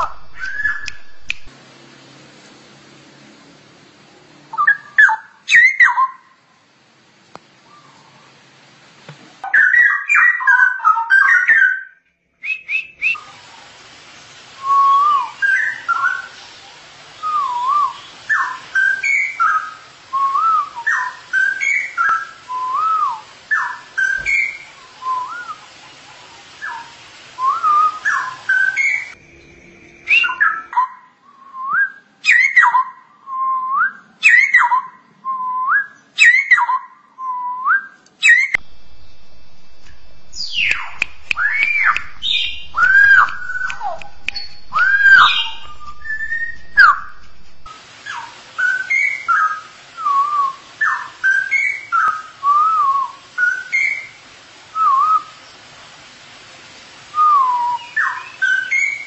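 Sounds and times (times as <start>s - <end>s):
bird singing whistled phrases: 0.0s - 1.5s, 4.5s - 6.2s, 9.5s - 13.2s, 14.6s - 16.4s, 17.2s - 25.7s, 26.6s - 54.2s, 54.8s - 55.4s, 57.2s - 59.0s
bird chattering burst: 39.0s - 47.4s.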